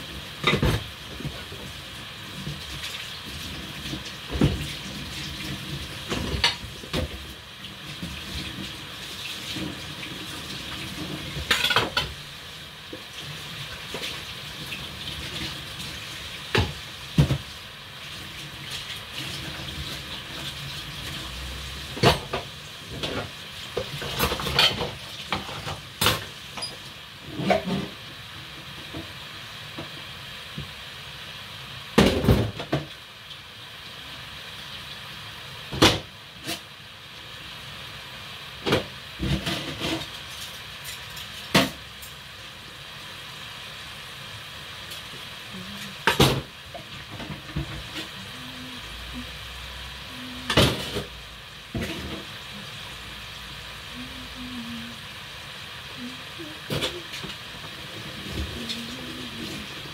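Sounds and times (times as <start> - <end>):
food frying in hot oil: 0.0 - 59.9
dishes and utensils clattering: 11.4 - 12.1, 24.0 - 27.9.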